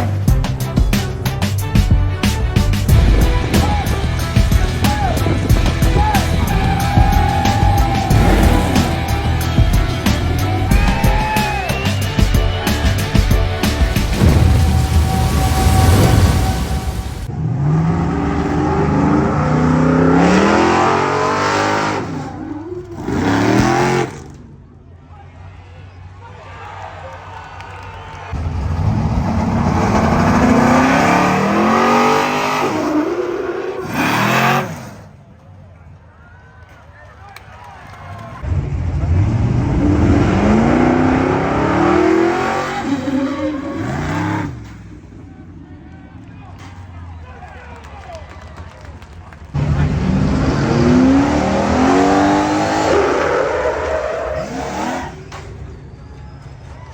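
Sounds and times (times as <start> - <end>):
vehicle engine revving: 0.0 - 24.6, 28.4 - 35.2, 38.4 - 46.3, 49.5 - 55.7.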